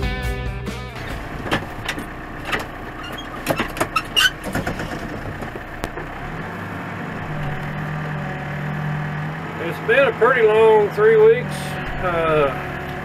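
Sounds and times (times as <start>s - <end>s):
backhoe engine drone: 0.6s - 13.0s
metal clanks and clicks: 1.0s - 6.1s.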